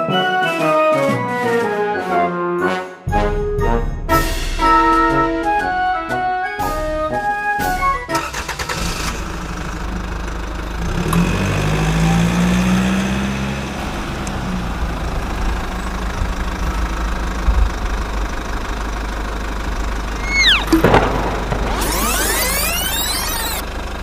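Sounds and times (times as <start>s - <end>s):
small engine running: 8.2s - 24.0s.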